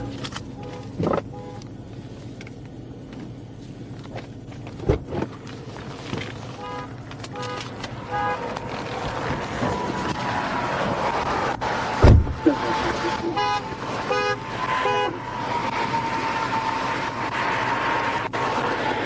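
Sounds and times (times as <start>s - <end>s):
vehicle hum: 0.0s - 19.0s
dull knocks: 12.0s - 12.4s.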